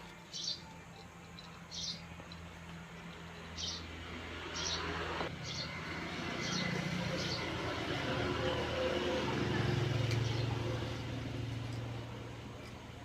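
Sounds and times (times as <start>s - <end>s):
bird chirping: 0.0s - 2.4s
traffic hum: 0.0s - 13.0s.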